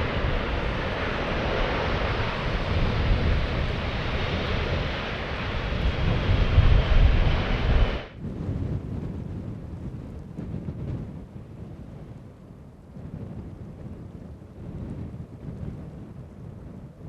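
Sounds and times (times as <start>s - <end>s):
jet engines rumbling: 0.0s - 8.2s
wind on microphone: 0.0s - 17.0s.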